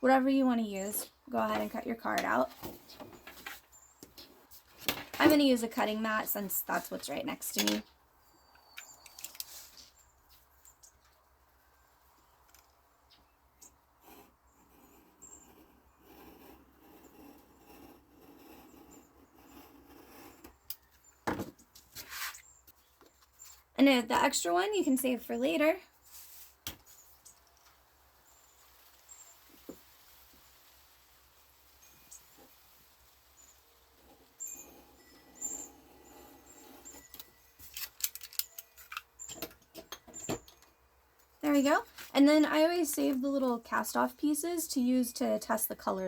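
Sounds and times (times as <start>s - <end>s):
small birds chirping: 7.6s - 13.9s, 26.8s - 29.7s, 31.7s - 37.5s
sharp clicks and paper rustles: 37.2s - 39.8s.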